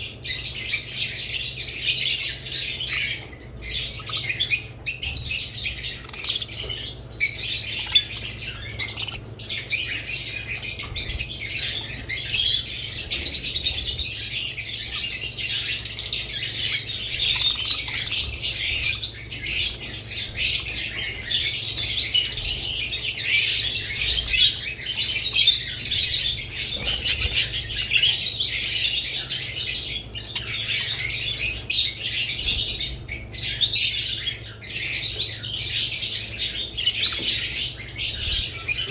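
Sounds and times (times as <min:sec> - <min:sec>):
birds chirping and chattering: 0:00.0 - 0:38.9.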